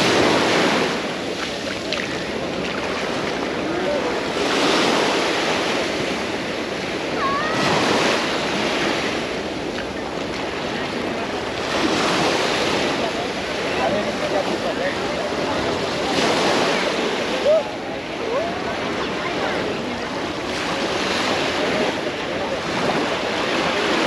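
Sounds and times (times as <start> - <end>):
small waves breaking on shore: 0.0 - 24.0.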